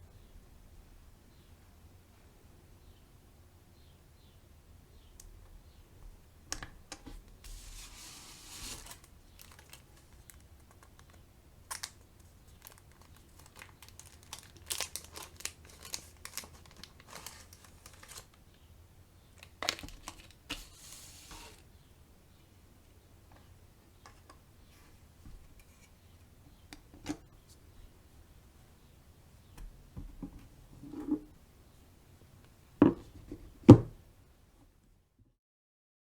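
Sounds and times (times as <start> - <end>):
plastic packaging crinkling: 7.5 - 18.4, 19.4 - 21.6.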